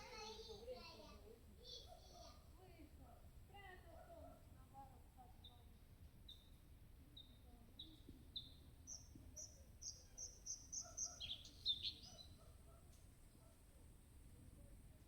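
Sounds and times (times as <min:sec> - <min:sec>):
songbird singing: 0:05.3 - 0:13.7.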